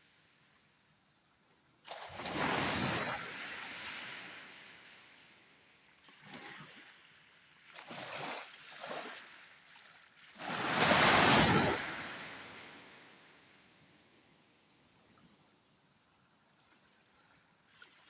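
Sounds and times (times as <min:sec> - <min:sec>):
sea waves washing ashore: 0:10.3 - 0:13.5.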